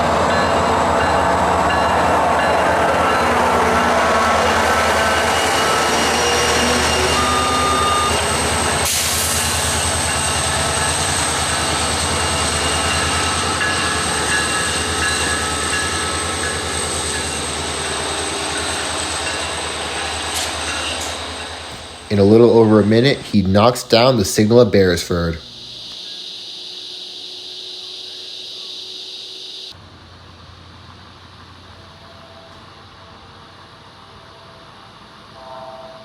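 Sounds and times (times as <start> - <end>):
train wheels on rails: 0.0 - 24.5
diesel locomotive hum: 0.0 - 36.0.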